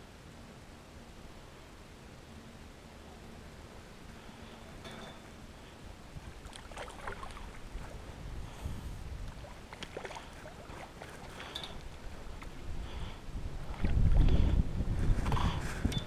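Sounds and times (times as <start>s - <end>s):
wind and water rumble: 0.0s - 16.0s
light clicks and rattles: 11.0s - 12.6s.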